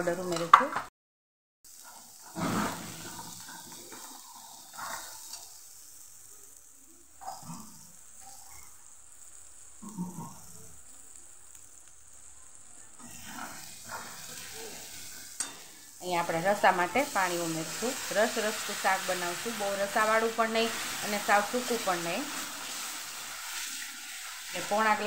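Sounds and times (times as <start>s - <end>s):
masala sizzling in oil: 0.0s - 0.8s, 1.6s - 25.0s
steel spoon stirring: 13.3s - 15.8s.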